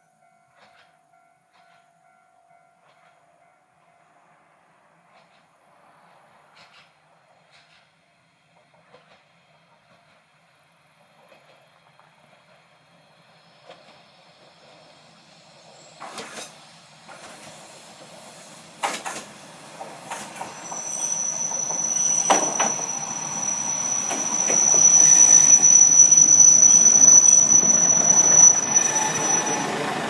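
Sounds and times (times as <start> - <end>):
diesel railcar arriving: 0.0 - 30.0
brake and wheel squeal: 13.4 - 30.0.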